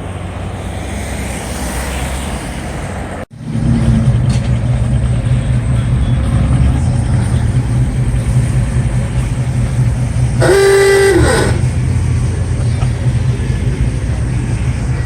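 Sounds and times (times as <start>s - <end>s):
steady low rumble: 3.4s - 15.0s
vehicle horn blare: 10.4s - 12.0s.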